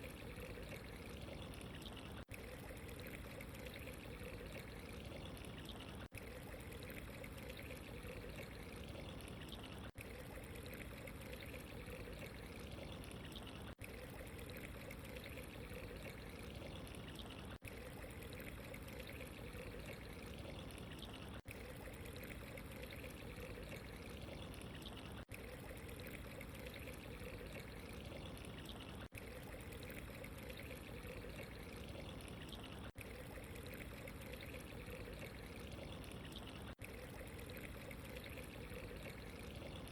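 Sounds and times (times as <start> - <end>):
running water trickling: 0.0 - 39.9.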